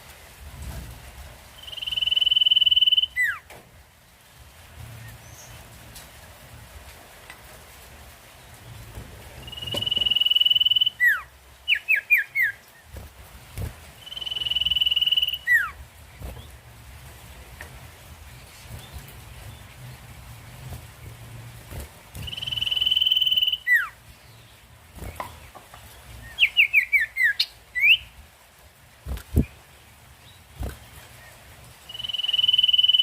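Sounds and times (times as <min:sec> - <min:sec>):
bird whistling: 0:01.6 - 0:03.4, 0:09.5 - 0:12.6, 0:14.0 - 0:15.8, 0:22.2 - 0:24.0, 0:26.4 - 0:28.1, 0:31.9 - 0:33.0
bird chirps falling: 0:09.4 - 0:12.6, 0:14.0 - 0:15.7, 0:22.2 - 0:23.9, 0:31.9 - 0:33.0.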